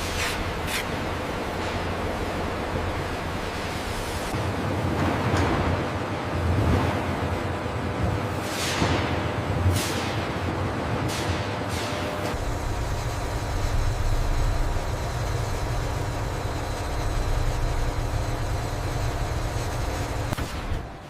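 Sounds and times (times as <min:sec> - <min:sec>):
industrial machinery rumbling: 0:12.1 - 0:21.0.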